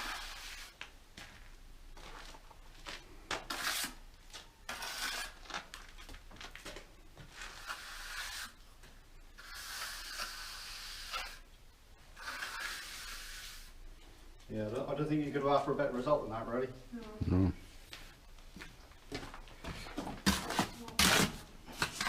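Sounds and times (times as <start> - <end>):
scraping and rubbing strokes: 0.0 - 0.9, 3.4 - 5.7, 7.2 - 8.6, 9.3 - 11.5, 12.1 - 13.8.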